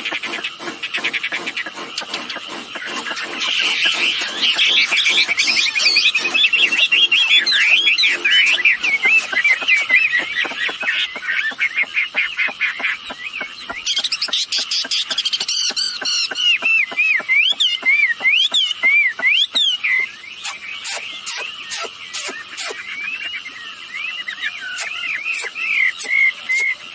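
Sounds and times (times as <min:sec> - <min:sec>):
bird chattering and whistling: 0:00.0 - 0:26.9.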